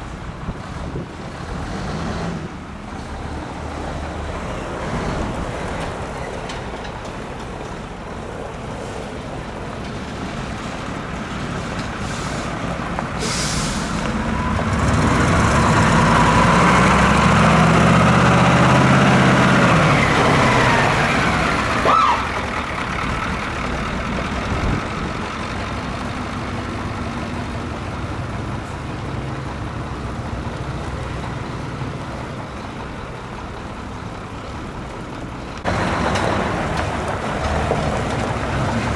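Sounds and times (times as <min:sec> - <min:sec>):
diesel truck passing: 0:00.0 - 0:38.9
air hiss: 0:11.6 - 0:14.1
brief high squeal: 0:21.8 - 0:22.3.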